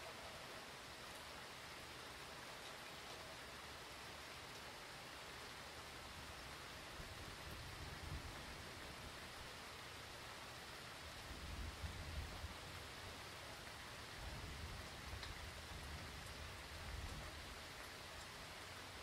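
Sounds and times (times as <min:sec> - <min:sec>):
heavy rain hiss: 0:00.0 - 0:19.0.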